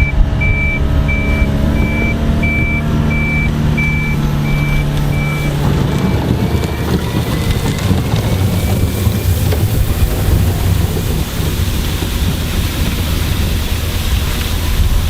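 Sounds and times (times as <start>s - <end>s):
reversing alarm beeping: 0.0s - 9.6s
low rumble of running engines: 0.0s - 15.0s.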